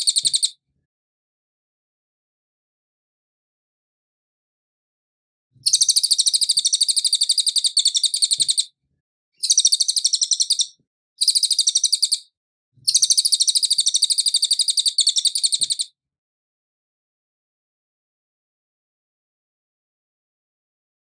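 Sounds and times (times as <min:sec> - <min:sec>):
insect trilling chirps: 0:09.4 - 0:12.2.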